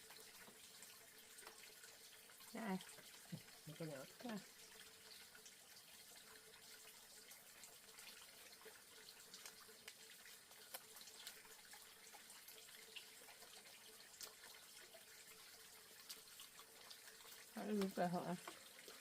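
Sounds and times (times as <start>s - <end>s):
small ticks: 1.3s - 1.6s, 9.3s - 11.9s, 14.1s - 14.7s, 16.0s - 18.7s.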